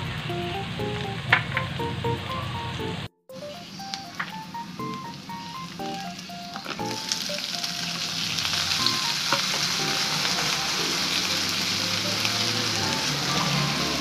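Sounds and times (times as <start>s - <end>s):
shrimp sizzling in hot oil: 3.4s - 14.0s.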